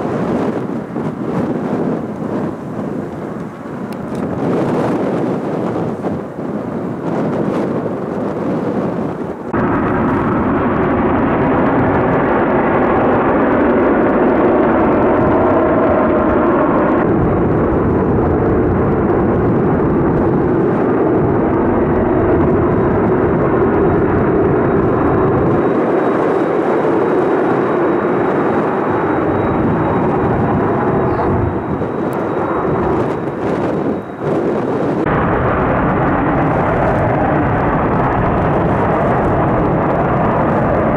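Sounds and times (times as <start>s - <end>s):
jet engines roaring: 0.0s - 40.9s
faint high whine: 23.8s - 37.2s.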